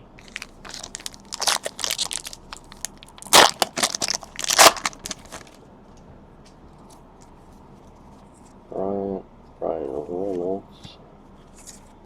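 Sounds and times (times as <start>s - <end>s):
plastic wrapper crinkling and tearing: 0.1s - 5.6s.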